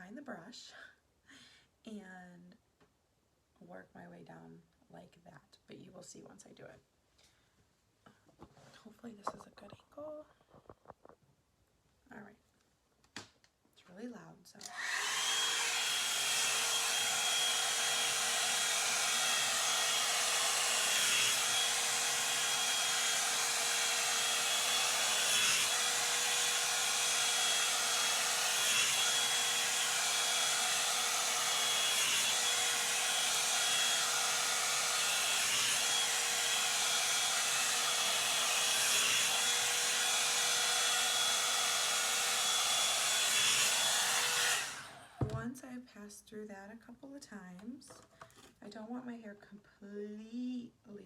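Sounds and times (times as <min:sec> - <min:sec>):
hot-air brush dryer running: 0:14.6 - 0:45.4.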